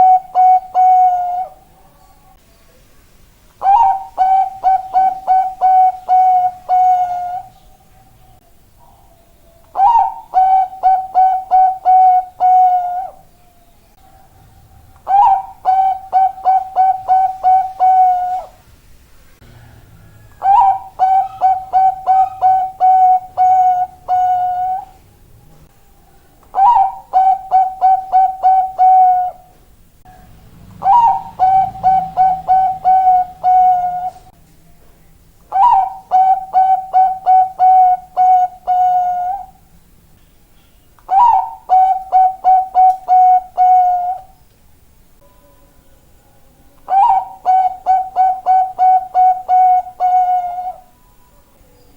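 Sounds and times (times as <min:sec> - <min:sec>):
dove cooing: 0:00.0 - 0:02.0, 0:03.6 - 0:07.7, 0:08.8 - 0:13.3, 0:14.0 - 0:18.6, 0:19.5 - 0:25.0, 0:26.1 - 0:29.6, 0:30.4 - 0:34.4, 0:35.5 - 0:39.7, 0:41.1 - 0:44.4, 0:46.8 - 0:51.0.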